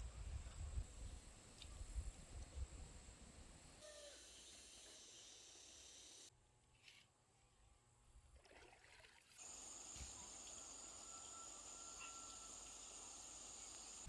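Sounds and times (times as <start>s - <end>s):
high-pitched insect drone: 9.4s - 14.0s.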